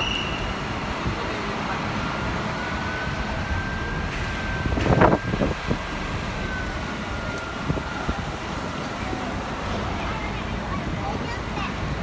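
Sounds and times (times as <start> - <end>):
bus engine rumble: 0.0 - 12.0
road traffic: 0.0 - 12.0
faint high whine: 1.4 - 9.6.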